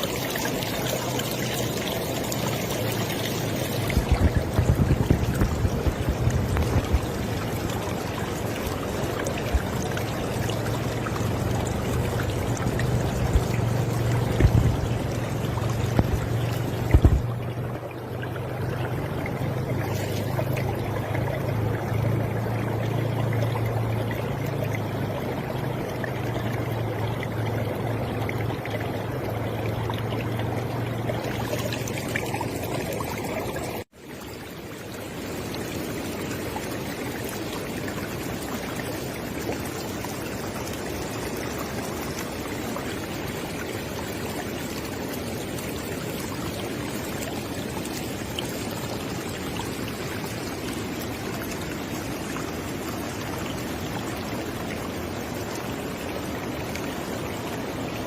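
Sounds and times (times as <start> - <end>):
river water flowing: 0.0 - 58.0
low rumble: 3.4 - 10.3, 10.9 - 17.6.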